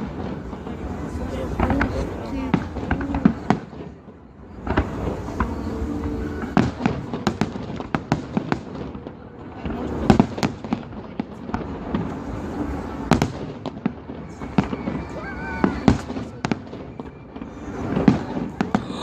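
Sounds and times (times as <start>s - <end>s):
firework crackles: 0.0s - 19.0s.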